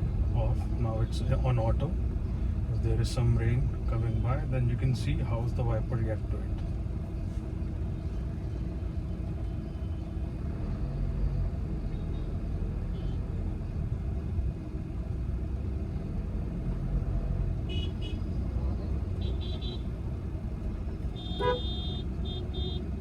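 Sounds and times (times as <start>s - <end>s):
car cabin road and engine noise: 0.0s - 23.0s
car horn toots: 17.7s - 18.2s, 19.2s - 19.9s, 21.1s - 22.8s.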